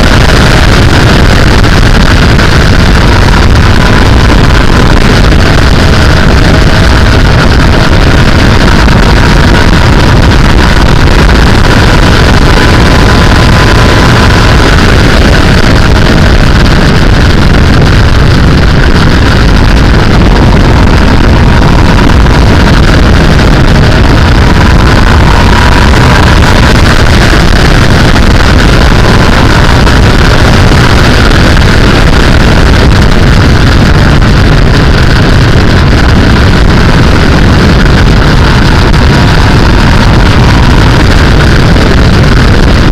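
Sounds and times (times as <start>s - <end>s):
motorcycle engine: 0.0s - 41.8s
wind rushing over microphone: 0.0s - 42.9s.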